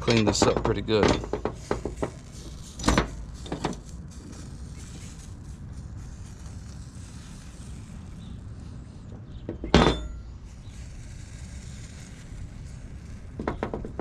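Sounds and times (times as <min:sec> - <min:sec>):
low background hum: 0:00.0 - 0:14.0
sharp metallic clank: 0:09.6 - 0:10.3.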